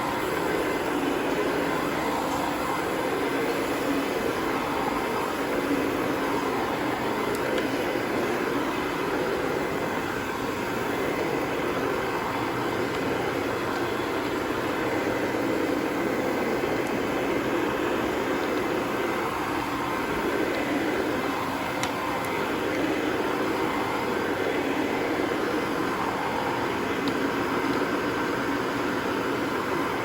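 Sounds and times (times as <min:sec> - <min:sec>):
carpet cleaning machine droning: 0:00.0 - 0:30.0.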